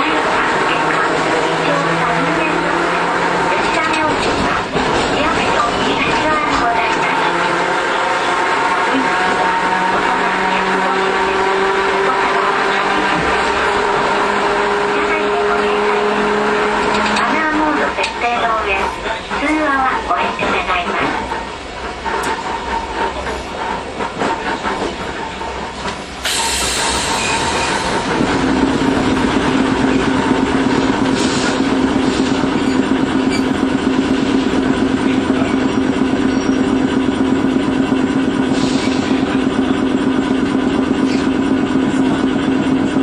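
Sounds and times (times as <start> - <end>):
streetcar running on rails: 0.0 - 43.0
loud hiss: 26.2 - 27.8.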